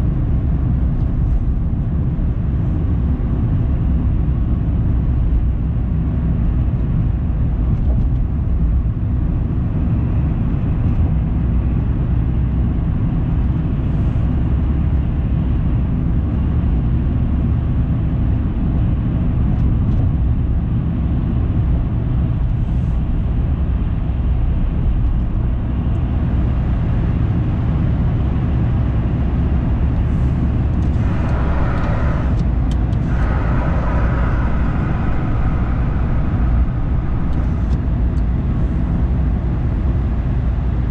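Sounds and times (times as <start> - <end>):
car road and engine rumble: 0.0 - 40.9
higher hum: 30.0 - 39.7.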